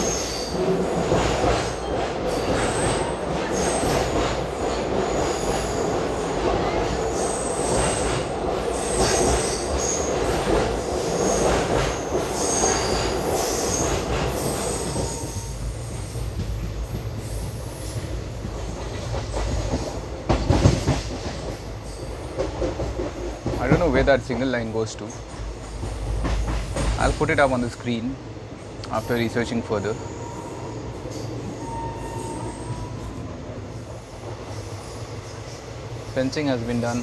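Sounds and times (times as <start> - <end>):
train rumbling over track: 0.0 - 37.0
high wheel squeals: 1.7 - 4.2, 12.0 - 16.2, 29.0 - 33.4.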